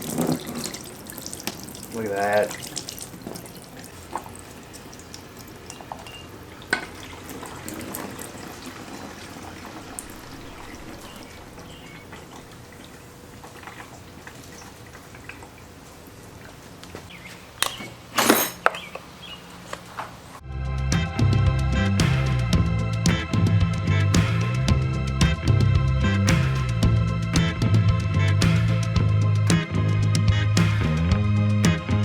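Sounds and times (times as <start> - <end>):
liquid dripping and trickling: 0.0 - 16.9.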